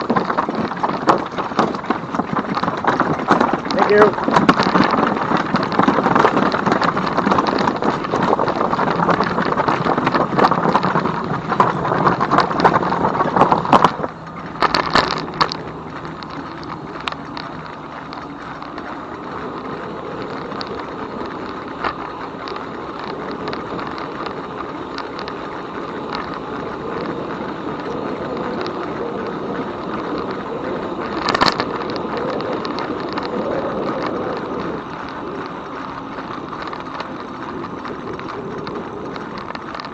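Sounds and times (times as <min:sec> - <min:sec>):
tyre rumble: 0:00.0 - 0:39.9
wind buffeting microphone: 0:00.0 - 0:39.9.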